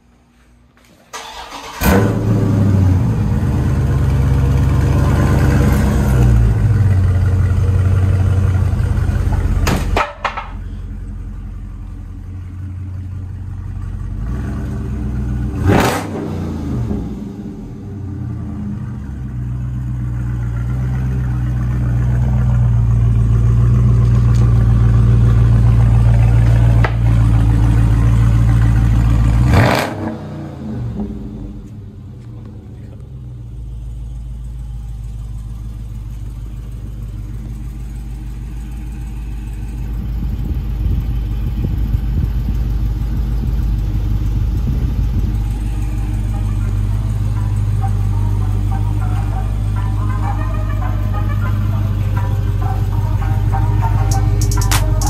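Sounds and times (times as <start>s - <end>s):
car engine exhaust idling: 1.4s - 55.0s.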